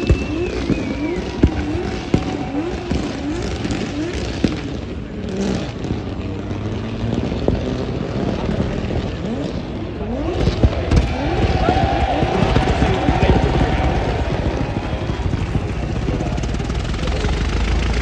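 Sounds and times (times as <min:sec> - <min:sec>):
car engine revving hard: 0:00.0 - 0:18.0
exhaust bangs: 0:00.0 - 0:18.0.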